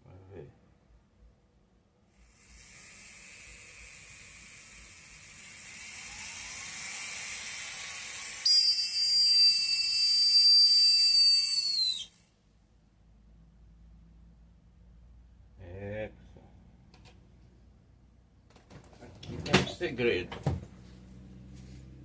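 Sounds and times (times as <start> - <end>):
nail drill whining: 2.2 - 12.3.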